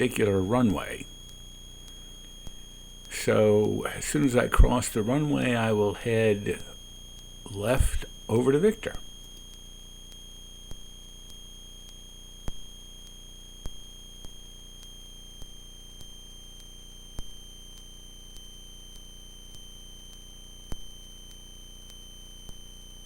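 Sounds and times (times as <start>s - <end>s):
low hum: 0.0s - 9.4s
high-pitched electronic whine: 0.0s - 23.0s.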